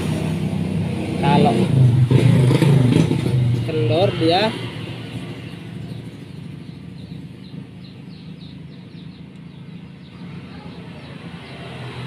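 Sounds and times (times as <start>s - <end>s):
bird chirping: 5.1s - 12.0s.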